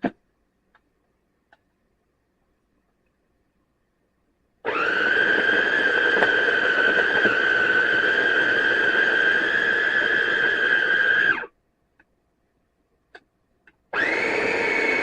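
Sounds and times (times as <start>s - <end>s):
food processor motor whine: 4.6s - 11.5s, 13.9s - 15.0s.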